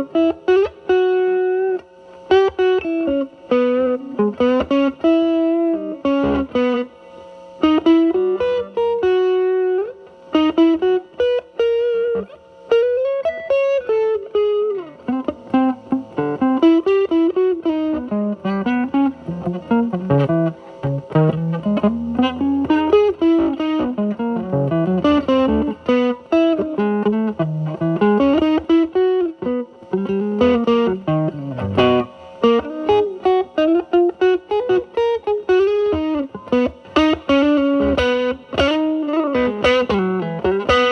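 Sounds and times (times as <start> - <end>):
electric guitar lead phrases: 0.0 - 40.9.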